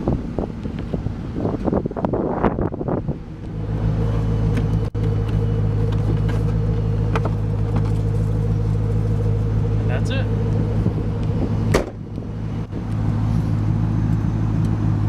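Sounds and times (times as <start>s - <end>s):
car engine idling: 0.0s - 15.0s
car roof panel clattering: 11.6s - 12.2s.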